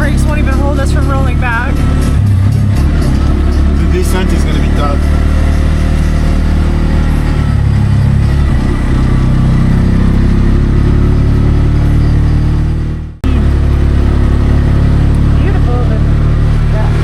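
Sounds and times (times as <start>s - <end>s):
auto-rickshaw engine under load: 0.0s - 17.0s.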